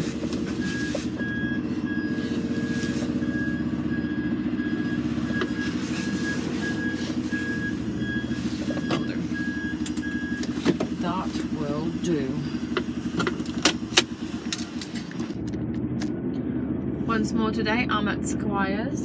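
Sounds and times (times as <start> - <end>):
reversing alarm beeping: 0.0 - 13.2
diesel engine running: 0.0 - 19.0.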